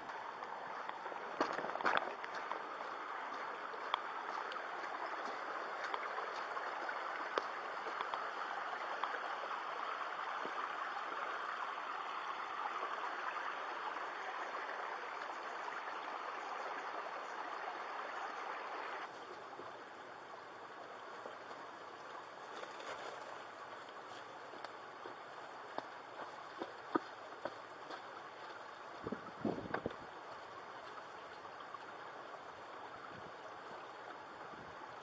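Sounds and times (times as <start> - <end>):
faint clicks: 0.0 - 9.3
flowing water rushing: 0.0 - 35.0.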